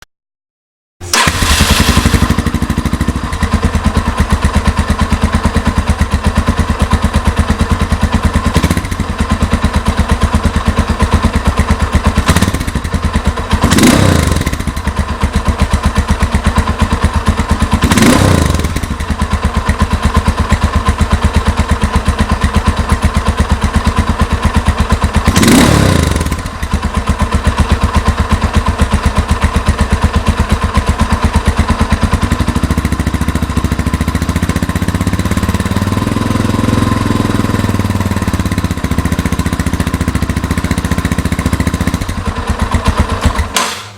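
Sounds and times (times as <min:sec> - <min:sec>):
engine revving: 0:01.0 - 0:03.4, 0:08.5 - 0:09.0, 0:12.2 - 0:12.9, 0:13.5 - 0:14.8, 0:17.8 - 0:19.0, 0:25.2 - 0:26.5, 0:34.3 - 0:42.0
motorcycle engine idling: 0:01.1 - 0:43.9.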